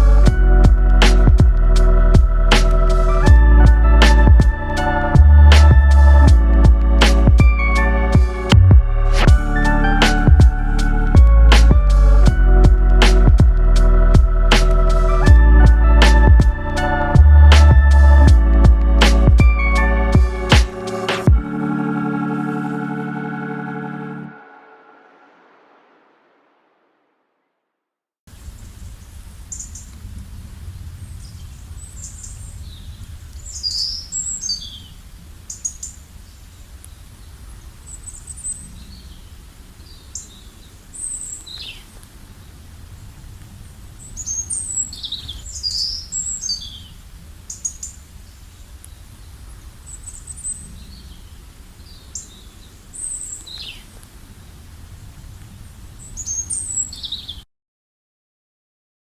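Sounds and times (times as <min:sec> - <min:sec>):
steady low rumble: 0:00.0 - 0:23.4
small birds chirping: 0:31.1 - 0:42.6, 0:44.0 - 0:55.2, 0:56.0 - 0:57.4.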